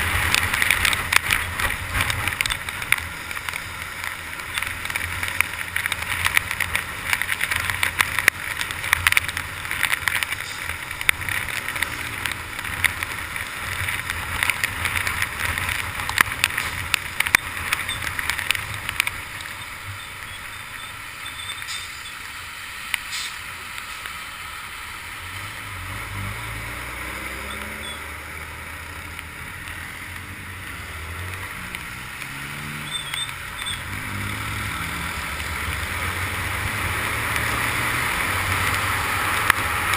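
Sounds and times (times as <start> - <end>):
rain hitting camera case: 0.0 - 20.0.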